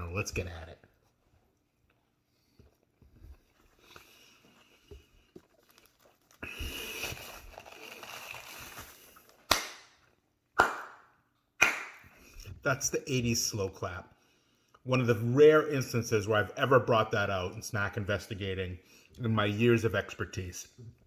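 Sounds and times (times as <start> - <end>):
slow hand claps: 9.5 - 9.9, 10.6 - 12.1.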